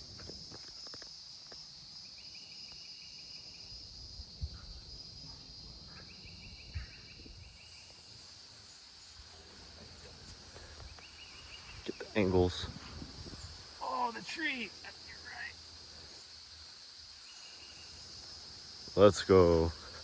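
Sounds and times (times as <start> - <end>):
insect chorus buzzing: 0.0 - 20.0
rapid pulsed insect trill: 0.0 - 20.0.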